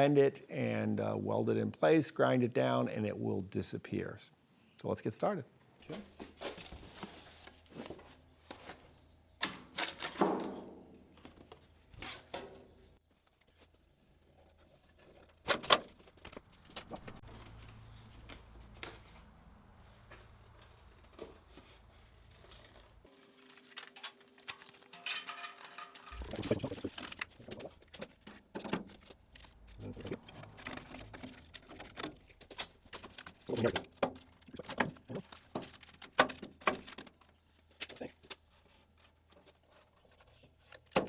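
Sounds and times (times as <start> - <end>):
tools clattering and knocking: 23.1 - 29.1.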